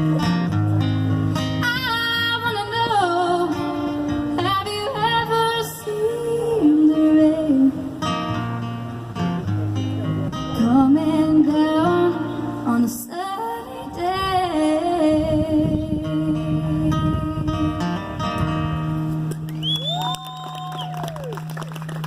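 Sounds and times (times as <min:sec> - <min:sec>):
strummed acoustic guitar: 0:00.0 - 0:19.5
woman singing: 0:01.6 - 0:08.0, 0:10.5 - 0:18.0.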